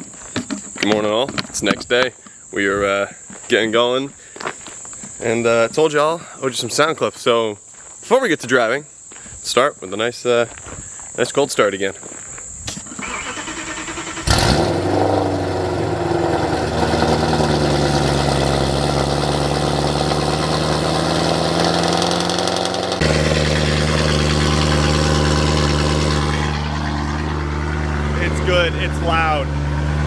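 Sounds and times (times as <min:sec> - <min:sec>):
starter motor cranking: 0:12.9 - 0:30.0
car engine idling loudly: 0:14.3 - 0:30.0.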